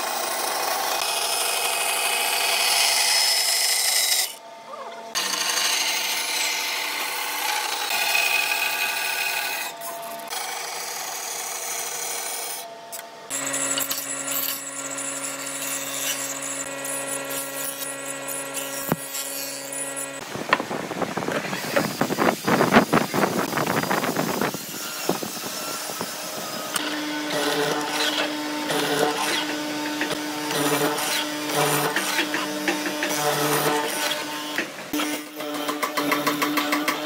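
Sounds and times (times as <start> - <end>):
power tool motor running: 5.1 - 20.3, 21.3 - 37.0
scraping and rasping on wood: 21.3 - 37.0.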